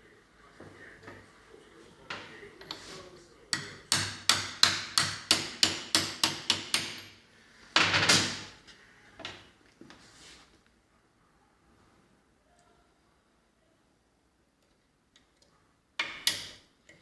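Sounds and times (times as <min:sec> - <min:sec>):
hammer strikes: 0:03.5 - 0:07.2.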